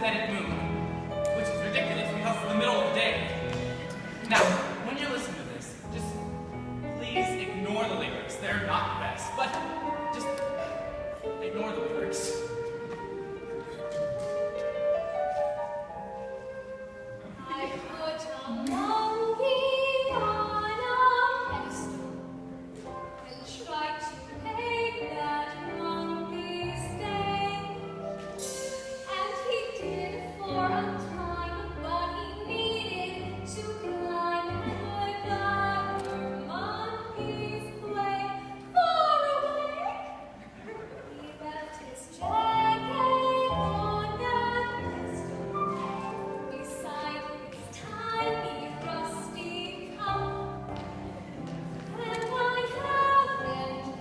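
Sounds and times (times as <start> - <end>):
instrumental accompaniment: 0.0 - 23.3, 24.2 - 38.8
woman singing: 17.4 - 22.2, 23.2 - 51.0, 51.9 - 54.0.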